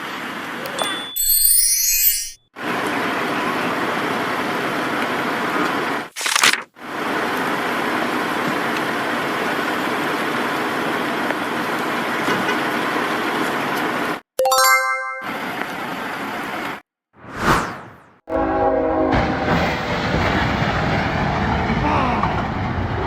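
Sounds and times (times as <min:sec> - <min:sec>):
bell-like ding: 0:00.7 - 0:02.4, 0:14.4 - 0:15.4.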